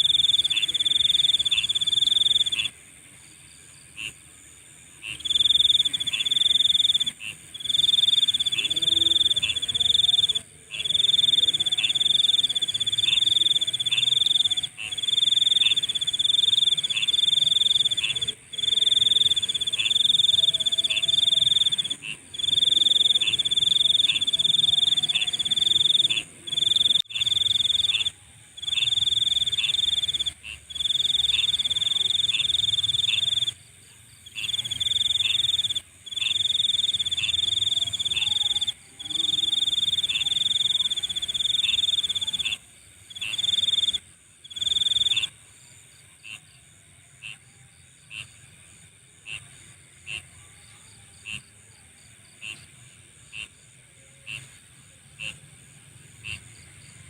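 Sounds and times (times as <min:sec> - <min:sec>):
insect high trill: 0:00.0 - 0:02.8, 0:05.0 - 0:45.4
high-pitched insect chorus: 0:00.0 - 0:49.8
single insect chirps: 0:05.0 - 0:33.6, 0:34.3 - 0:45.3.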